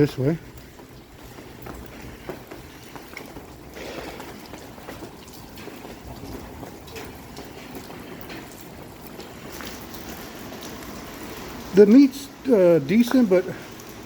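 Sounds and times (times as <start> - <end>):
rain on wet street: 0.0 - 14.0
raindrop taps: 0.0 - 14.0.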